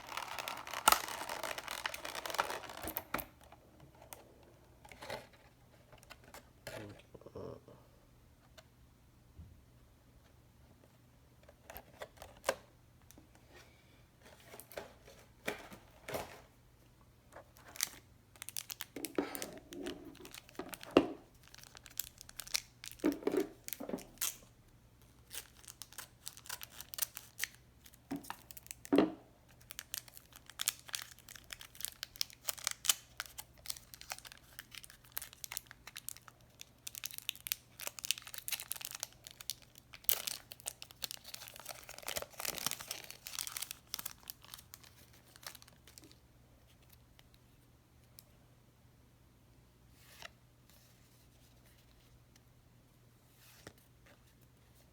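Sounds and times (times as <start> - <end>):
packaging crinkling and tearing: 0.0 - 3.3, 17.6 - 24.5, 25.2 - 28.9, 29.5 - 46.2.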